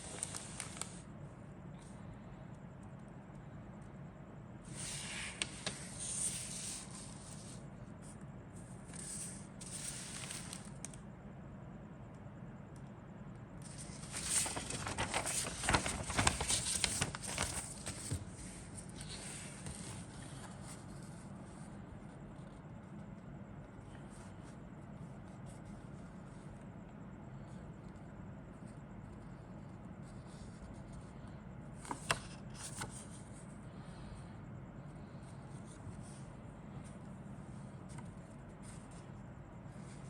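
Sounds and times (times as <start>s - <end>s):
plastic bags crinkling: 13.8s - 18.0s.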